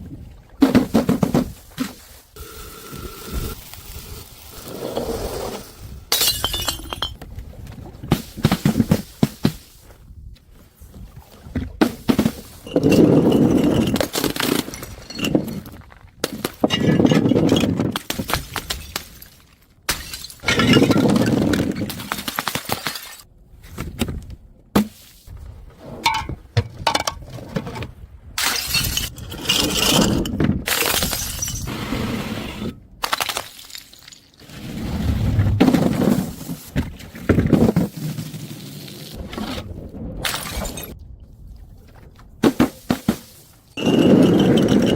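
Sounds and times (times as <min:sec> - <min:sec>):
glass bottles smashing: 0:06.1 - 0:07.2, 0:19.9 - 0:23.2, 0:28.4 - 0:29.8, 0:30.7 - 0:31.7, 0:33.0 - 0:34.4.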